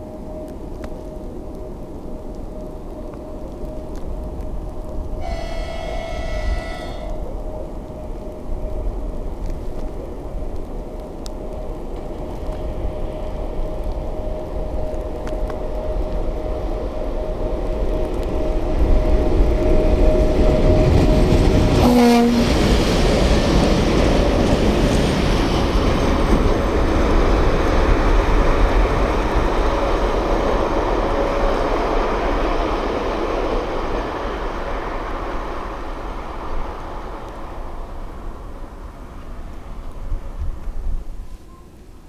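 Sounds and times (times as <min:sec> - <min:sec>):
faint steady whine: 0:00.0 - 0:21.6
train passing on rails: 0:00.0 - 0:42.0
short tonal blip: 0:05.2 - 0:07.4.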